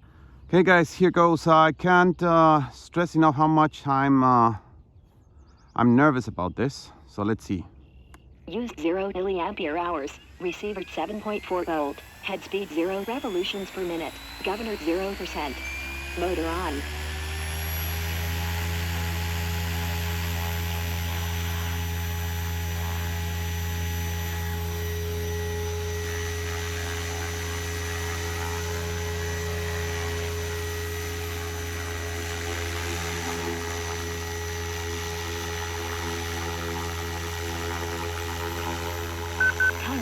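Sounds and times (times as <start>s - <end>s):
helicopter rotor drone: 7.8s - 40.0s
electric motor whine: 9.0s - 40.0s.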